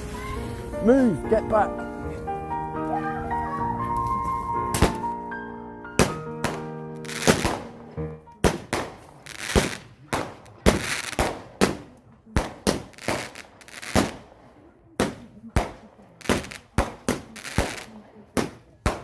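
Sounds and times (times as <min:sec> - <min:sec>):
fireworks banging: 0:04.6 - 0:05.3, 0:06.0 - 0:19.0.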